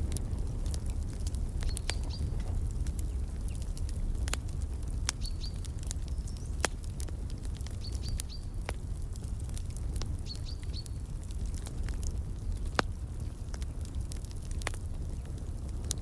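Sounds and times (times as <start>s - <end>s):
wood fire crackling and popping: 0.0s - 16.0s
small bird chirping: 1.6s - 2.3s, 5.2s - 6.6s, 7.8s - 8.5s, 10.2s - 11.0s.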